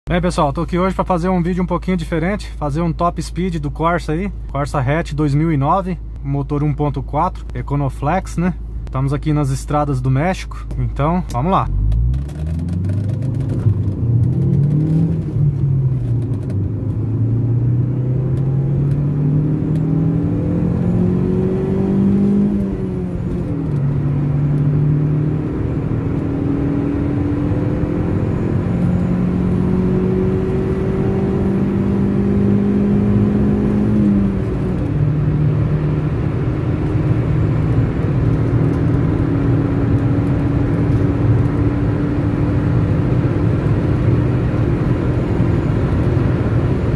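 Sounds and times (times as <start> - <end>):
road and wind rumble: 0.1 - 46.9
car engine accelerating through gears: 11.6 - 46.9.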